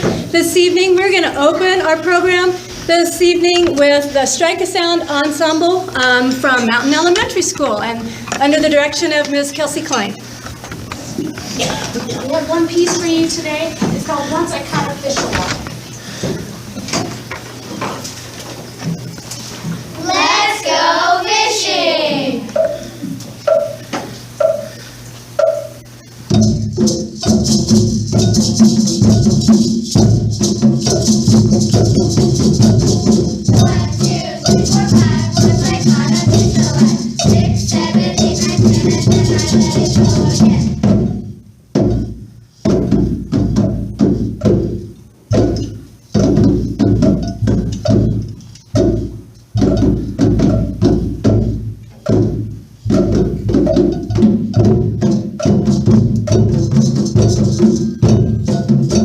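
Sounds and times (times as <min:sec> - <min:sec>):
pitched percussion notes: 0:19.9 - 0:59.0
shaker: 0:22.5 - 0:59.0.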